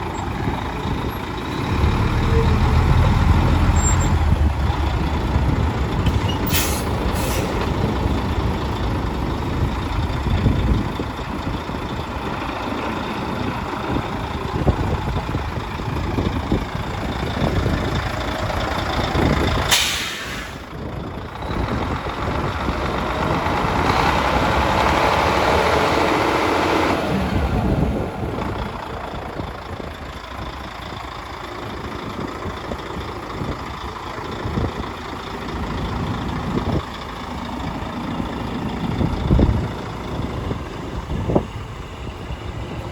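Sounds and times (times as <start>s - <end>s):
diesel truck engine running: 0.0s - 42.9s
air brake hisses: 6.4s - 7.6s, 19.7s - 20.7s.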